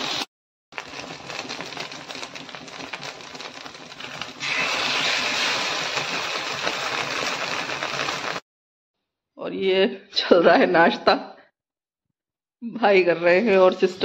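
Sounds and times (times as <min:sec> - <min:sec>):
omelette sizzling in oil: 0:00.0 - 0:08.4.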